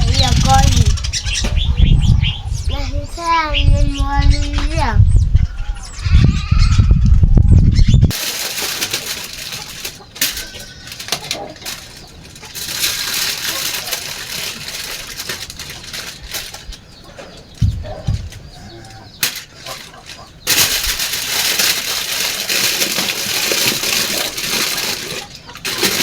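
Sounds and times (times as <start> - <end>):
hissy rustling background: 0.0 - 1.2, 8.1 - 26.0
birds calling: 0.0 - 26.0.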